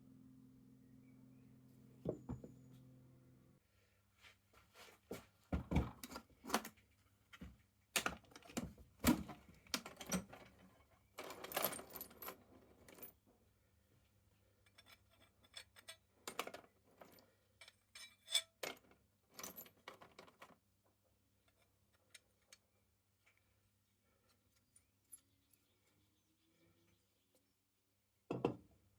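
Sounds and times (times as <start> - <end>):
metal tool parts clinking: 14.7 - 18.8.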